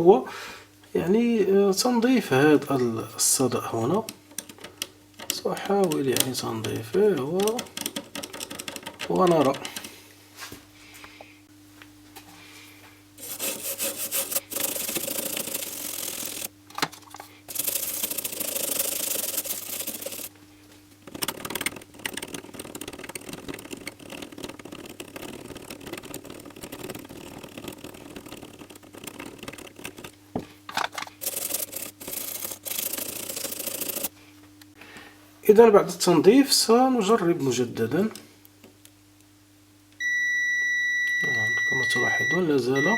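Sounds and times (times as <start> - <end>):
scrubbing and scratching circuit board: 13.2 - 20.3, 21.0 - 34.1.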